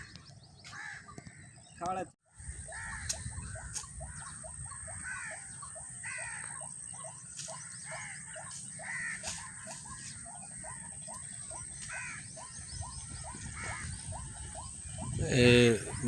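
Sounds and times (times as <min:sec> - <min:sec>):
waterhen croaking calls: 0:02.4 - 0:16.0.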